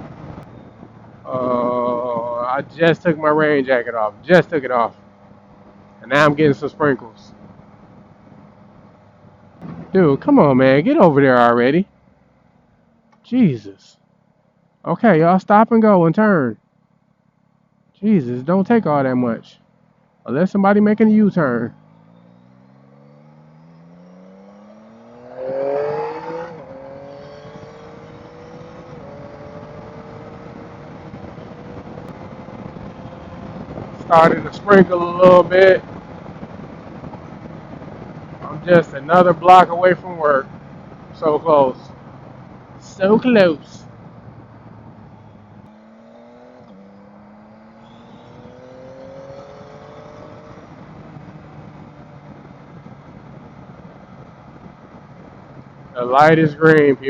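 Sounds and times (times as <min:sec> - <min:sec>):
motorcycle engine accelerating: 0:00.0 - 0:13.2, 0:18.9 - 0:57.0
rush of noise: 0:20.3 - 0:57.0.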